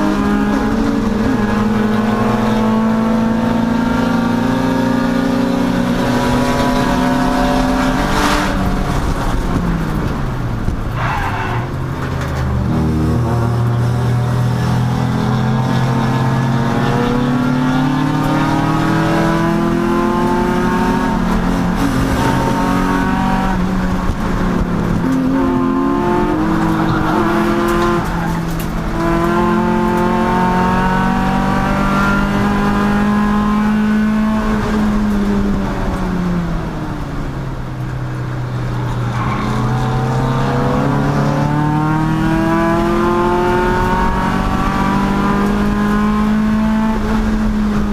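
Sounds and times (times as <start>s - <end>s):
race car engine accelerating: 12.1s - 36.6s, 38.5s - 47.9s.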